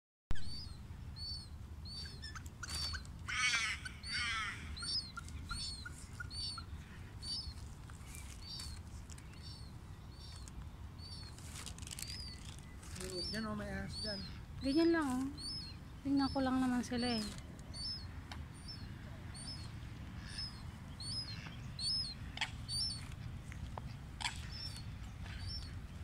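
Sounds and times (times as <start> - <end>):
bird trilled call: 0.3 - 7.6
small bird chirping: 0.3 - 26.0.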